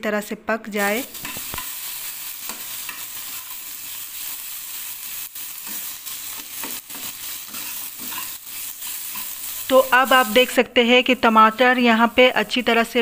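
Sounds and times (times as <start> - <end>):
vegetables sizzling in oil: 0.7 - 13.0
steel spatula scraping a pan: 1.1 - 10.4.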